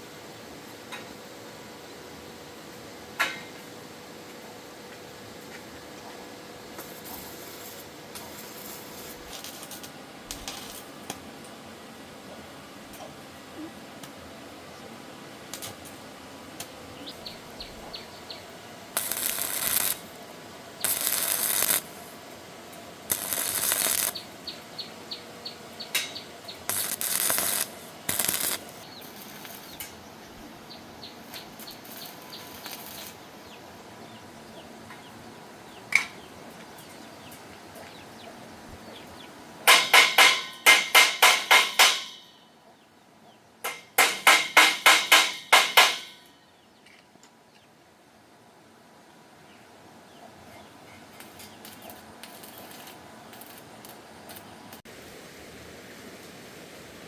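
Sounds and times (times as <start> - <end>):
bursts of harsh noise: 18.8 - 20.2, 20.8 - 22.3, 23.0 - 24.2, 26.0 - 29.9
hammer blows on metal: 39.7 - 42.4, 43.7 - 46.3.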